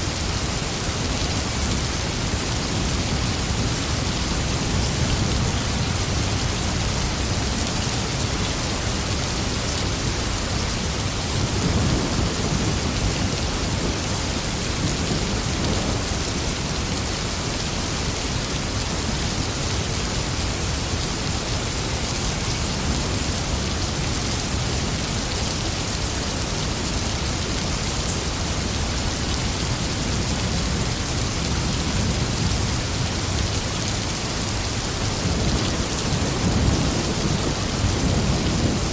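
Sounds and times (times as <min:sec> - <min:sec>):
heavy rain falling: 0:00.0 - 0:38.9
low thunder rumbling: 0:35.1 - 0:38.9.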